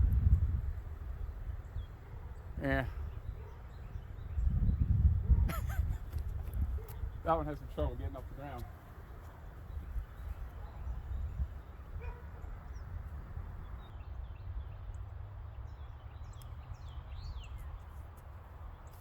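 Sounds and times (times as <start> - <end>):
steady low rumble: 0.0 - 1.9
birds chirping: 0.0 - 19.0.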